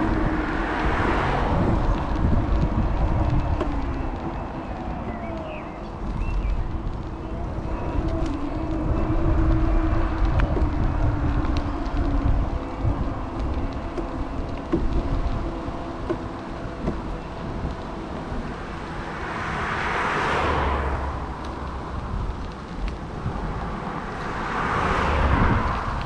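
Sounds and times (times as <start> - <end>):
vehicle passing: 0.0 - 26.0
wind rumble on microphone: 0.0 - 26.0.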